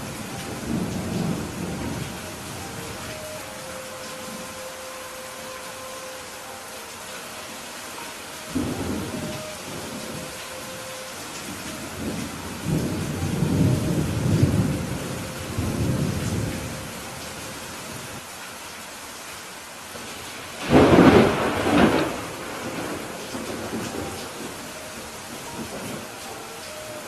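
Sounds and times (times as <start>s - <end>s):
thunder rumbling: 0.0s - 4.6s, 8.5s - 17.2s, 20.6s - 26.2s
rain falling: 0.0s - 27.0s.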